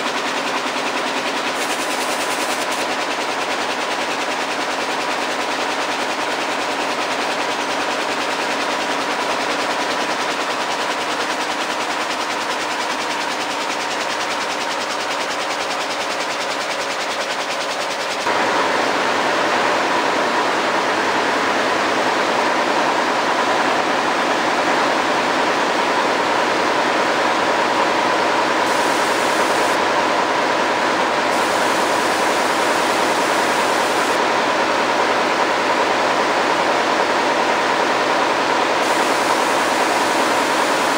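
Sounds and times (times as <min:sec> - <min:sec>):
loom mechanical clatter: 0:00.0 - 0:18.3.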